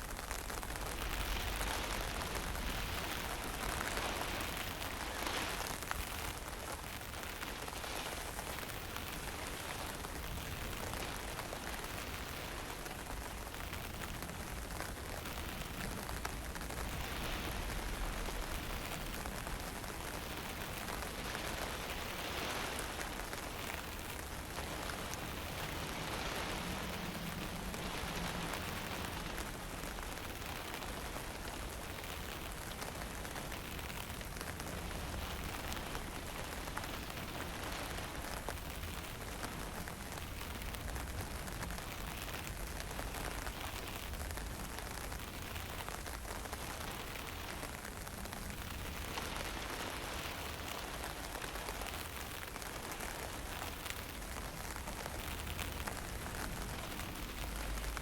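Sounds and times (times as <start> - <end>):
fine rain hissing: 0.0 - 58.0
wind rumbling on microphone: 0.0 - 58.0.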